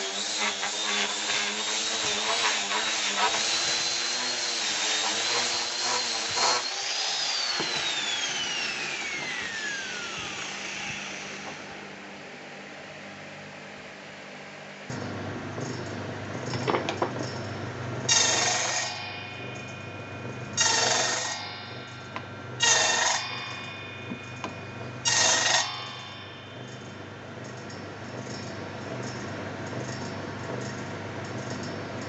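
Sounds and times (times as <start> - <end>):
router bit cutting wood ringing: 0.0 - 11.9, 18.1 - 29.2
power tool motor running: 0.0 - 12.0.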